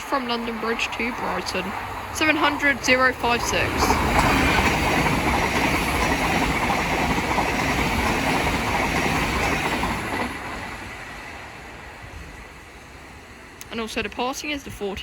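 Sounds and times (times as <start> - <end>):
train wheel and rail noise: 0.0 - 15.0.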